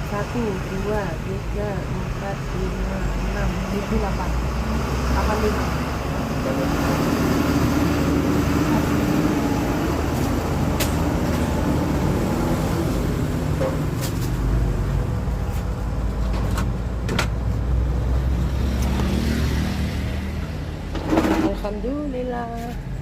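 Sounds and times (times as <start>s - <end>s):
road traffic: 0.0s - 23.0s
vehicle engine humming: 0.0s - 23.0s.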